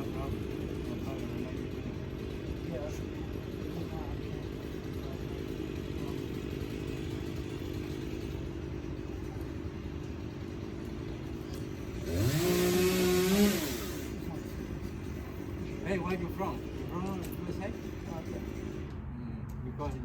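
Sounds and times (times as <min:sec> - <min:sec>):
engine rumbling and revving: 0:03.4 - 0:17.4.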